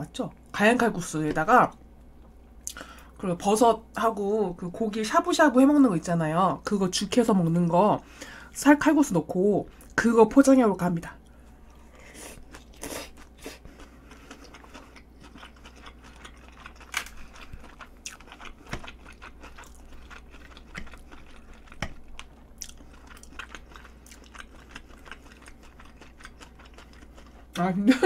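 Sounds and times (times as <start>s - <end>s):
chewing and mouth sounds: 11.2s - 27.6s.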